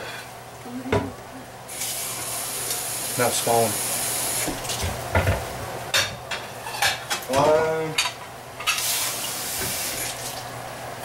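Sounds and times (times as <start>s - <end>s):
food sizzling in a pan: 1.7s - 4.8s, 8.6s - 10.4s
kitchenware clinking: 4.7s - 8.9s.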